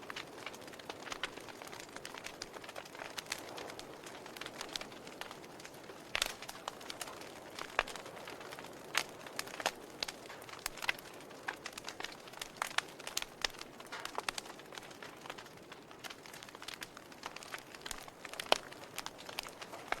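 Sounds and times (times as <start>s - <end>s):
fire pops and snaps: 0.0s - 20.0s
wood fire crackling: 0.0s - 20.0s.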